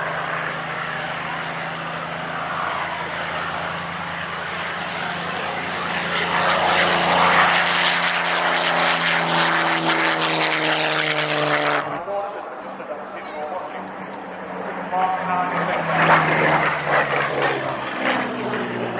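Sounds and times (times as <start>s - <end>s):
propeller aircraft engine flying past: 0.0s - 18.9s.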